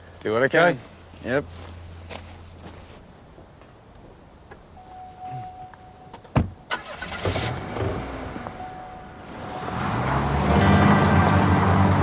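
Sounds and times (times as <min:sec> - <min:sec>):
vehicle engine starting and running: 0:06.6 - 0:12.0
background music: 0:08.6 - 0:12.0.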